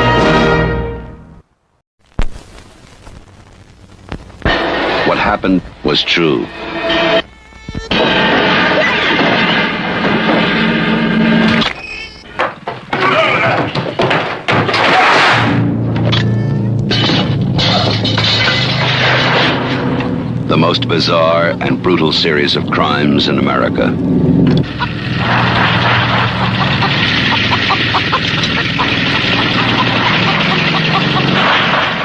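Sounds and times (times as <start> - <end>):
low eerie drone: 15.4 - 31.6
engine running with low hum: 15.6 - 31.6.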